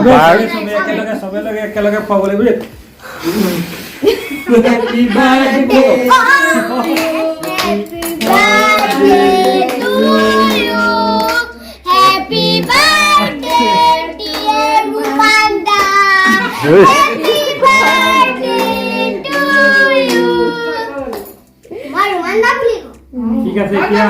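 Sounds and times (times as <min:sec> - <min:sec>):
group of voices singing a celebration song: 0:03.2 - 0:21.4
hand claps: 0:06.7 - 0:11.5, 0:14.2 - 0:16.1.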